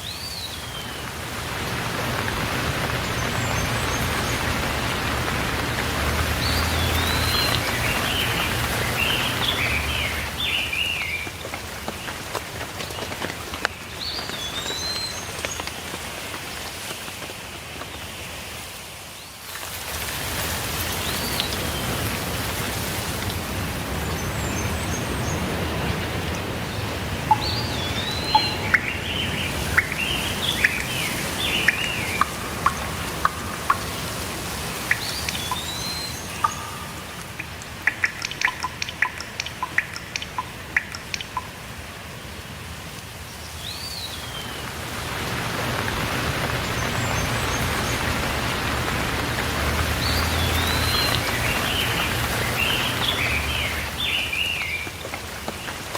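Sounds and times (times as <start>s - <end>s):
birds chirping: 0.0s - 15.9s, 23.7s - 41.6s, 43.5s - 55.9s
steady rainfall: 0.0s - 55.9s
water drips tapping: 0.1s - 16.5s, 20.7s - 41.9s, 44.6s - 55.9s.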